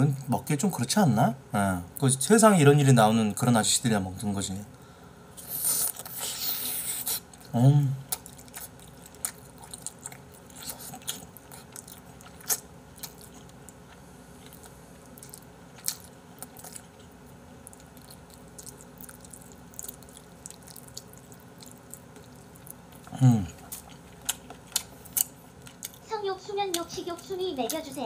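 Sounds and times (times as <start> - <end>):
close chewing with mouth smacks: 8.1 - 28.0.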